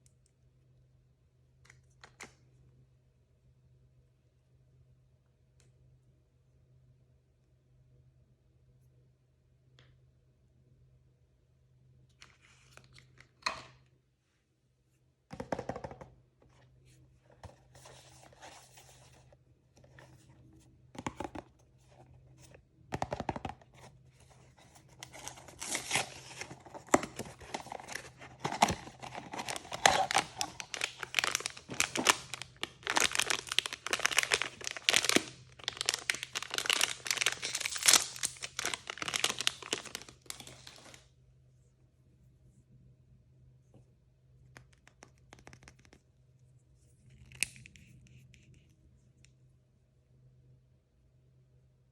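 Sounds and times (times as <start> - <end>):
packaging rustling: 24.7 - 41.0
packaging tearing and crinkling: 25.1 - 41.0.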